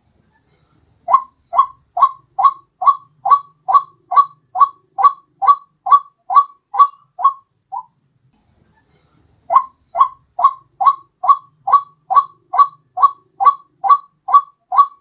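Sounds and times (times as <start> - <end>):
waterhen calling: 1.1 - 7.9, 9.5 - 15.0.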